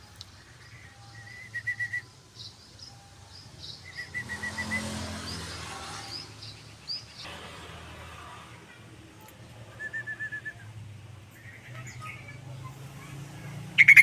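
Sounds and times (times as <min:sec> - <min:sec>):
passing traffic rumble: 0:00.0 - 0:14.0
bird chirping: 0:00.1 - 0:07.3, 0:13.7 - 0:14.0.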